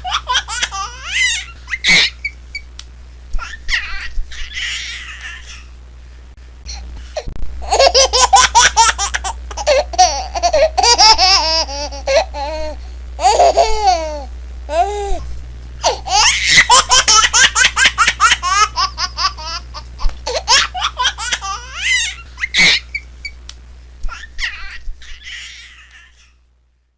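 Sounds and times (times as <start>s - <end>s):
baby giggling: 0.0s - 2.4s, 7.6s - 15.0s, 15.8s - 23.1s.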